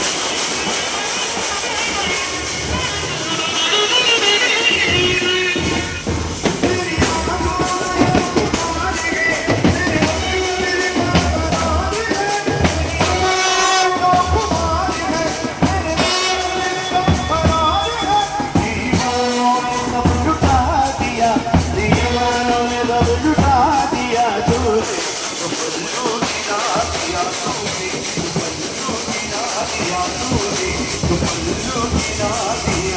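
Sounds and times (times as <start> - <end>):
steady drum beat: 0.0 - 32.9.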